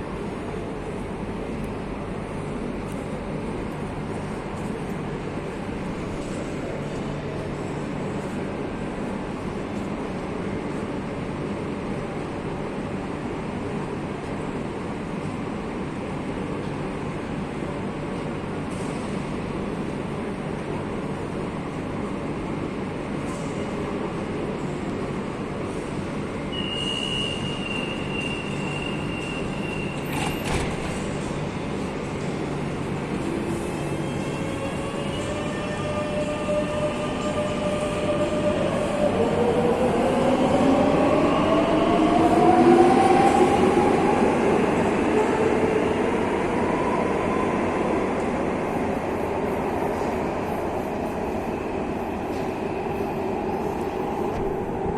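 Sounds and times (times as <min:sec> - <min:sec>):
train rumbling along rails: 0:00.0 - 0:54.9
high wheel squeal: 0:26.5 - 0:30.3.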